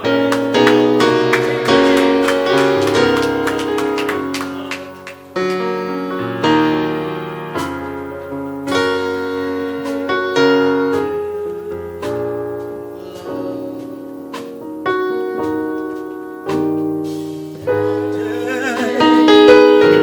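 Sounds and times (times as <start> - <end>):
person singing: 0.0 - 6.1, 12.8 - 14.5, 17.7 - 20.0
piano playing slow chords: 0.0 - 20.0.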